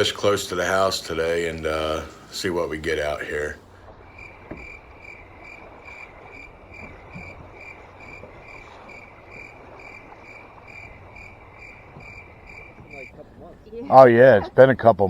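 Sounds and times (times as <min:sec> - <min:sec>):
cricket chirping: 0:03.1 - 0:13.5.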